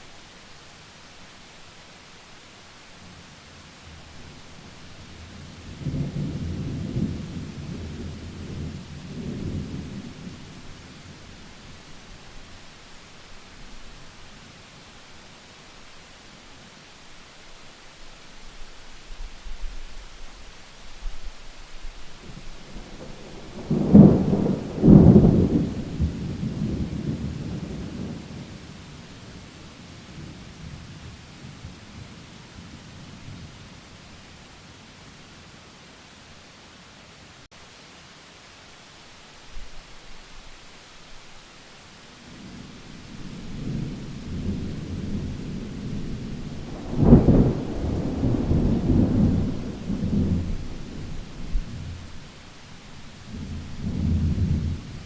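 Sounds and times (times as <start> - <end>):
steady rain: 0.0 - 55.0
thunder crashing and rumbling: 22.7 - 28.5, 42.5 - 52.1.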